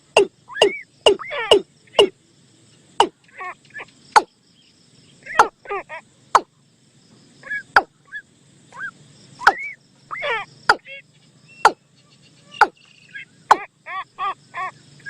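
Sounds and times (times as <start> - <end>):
warbling chirping bird calls: 0.0 - 6.6, 7.4 - 15.0.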